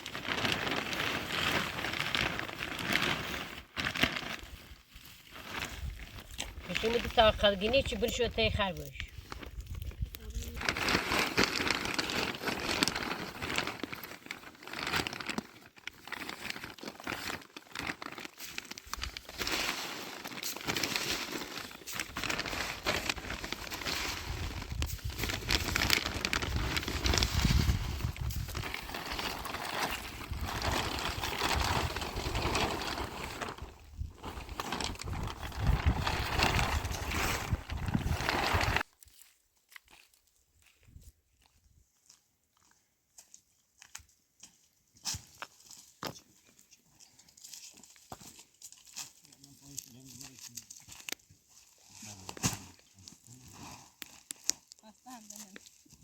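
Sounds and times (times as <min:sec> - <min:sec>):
dry rustling and crackling: 0:00.0 - 0:40.2.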